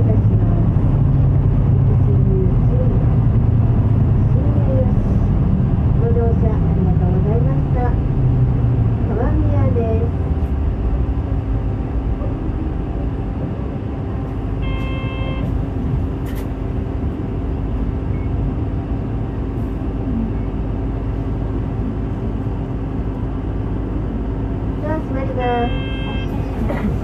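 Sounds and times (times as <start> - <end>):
bus engine and road noise: 0.0 - 27.0
short horn-like tone: 14.6 - 15.6, 25.5 - 26.4.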